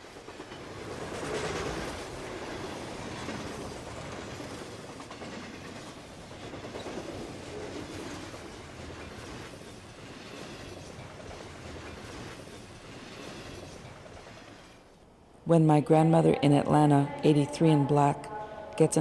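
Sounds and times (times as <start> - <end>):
train wheels clattering on rails: 0.0 - 14.9.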